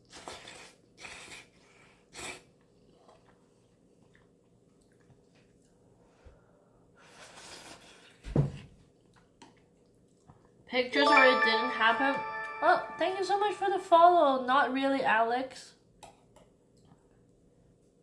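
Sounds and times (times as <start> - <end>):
person slurping noodles: 0.1 - 1.6.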